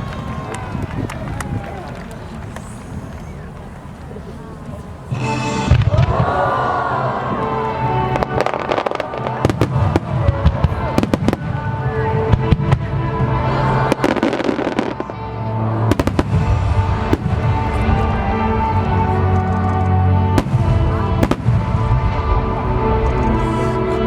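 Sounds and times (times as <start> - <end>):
music playing: 5.1 - 24.0
fireworks bursting: 8.0 - 13.0, 15.8 - 19.1, 20.3 - 23.4.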